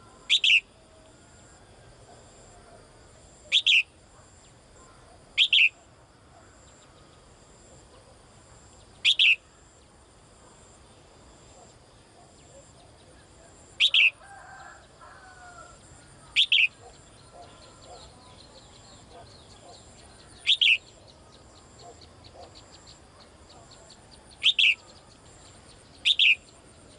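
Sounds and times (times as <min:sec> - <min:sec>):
bird double-noted call: 0:00.2 - 0:00.7, 0:03.5 - 0:03.9, 0:05.4 - 0:05.8, 0:09.0 - 0:09.4, 0:16.3 - 0:18.1, 0:20.4 - 0:20.9, 0:24.4 - 0:24.8, 0:26.0 - 0:26.5.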